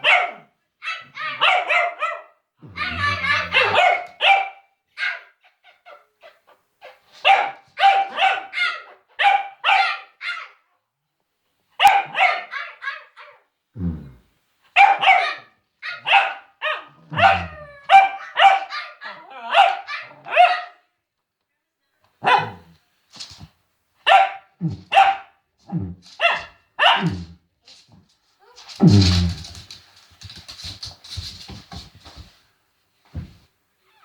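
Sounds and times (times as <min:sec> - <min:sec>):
dog barking: 0:00.0 - 0:05.4, 0:07.2 - 0:10.6, 0:11.8 - 0:13.4, 0:14.8 - 0:20.8, 0:22.2 - 0:22.7, 0:24.0 - 0:27.4.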